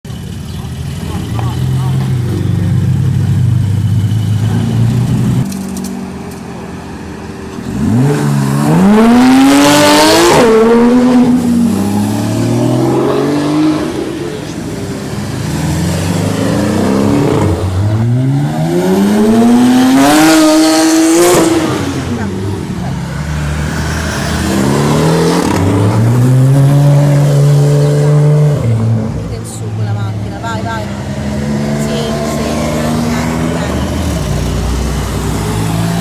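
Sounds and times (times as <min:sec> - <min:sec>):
sports car engine accelerating: 0:07.5 - 0:36.0.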